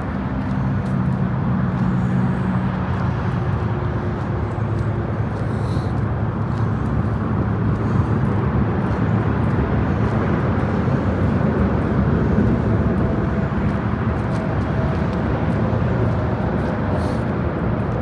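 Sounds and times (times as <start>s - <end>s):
road traffic rumble and hiss: 0.0s - 18.0s.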